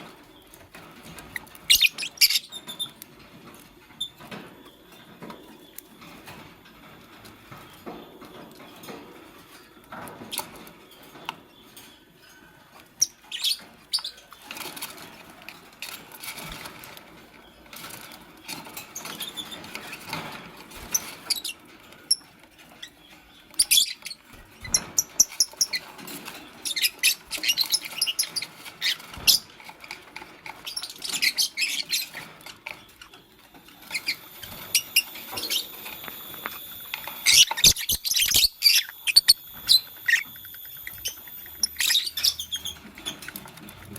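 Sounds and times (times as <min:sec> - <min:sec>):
lovebirds chirping: 0:00.0 - 0:03.0, 0:13.0 - 0:14.7, 0:20.8 - 0:29.6, 0:30.5 - 0:43.9
wings fluttering and rustling: 0:00.0 - 0:43.9.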